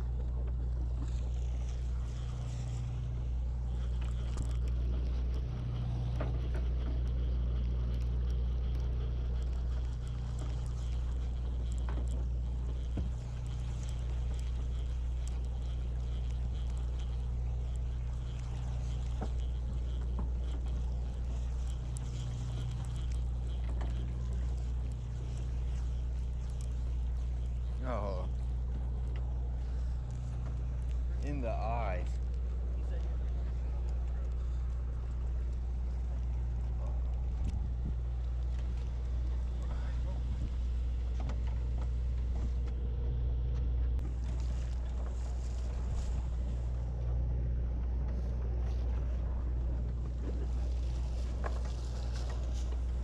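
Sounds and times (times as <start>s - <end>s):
boat engine droning: 0.0s - 53.0s
faint clicks and knocks: 0.0s - 53.0s.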